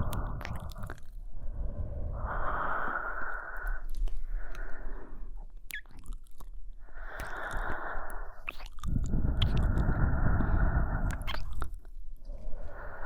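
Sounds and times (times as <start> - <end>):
woman breathing softly: 0.0 - 5.5, 6.8 - 11.4, 12.2 - 13.0.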